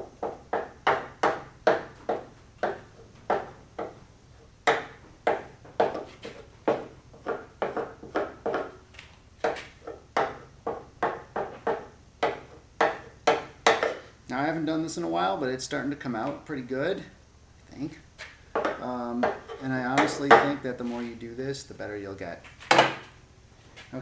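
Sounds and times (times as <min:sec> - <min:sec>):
wooden paddle tapping sheet metal: 0:00.0 - 0:14.1, 0:18.2 - 0:21.2.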